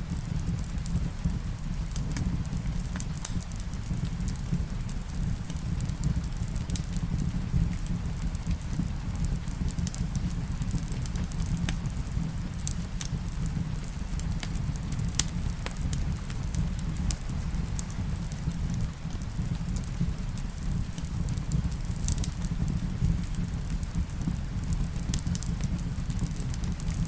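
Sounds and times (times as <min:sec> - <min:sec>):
wood fire crackling and popping: 0:00.0 - 0:27.0
rain hissing: 0:08.7 - 0:22.0.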